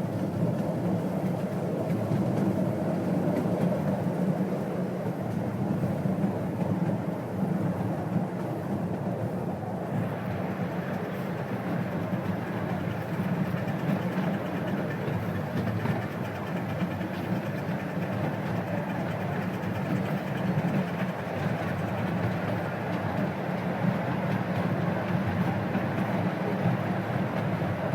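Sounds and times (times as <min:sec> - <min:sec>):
steam locomotive running: 0:00.0 - 0:27.9
wheels on track: 0:00.0 - 0:27.9.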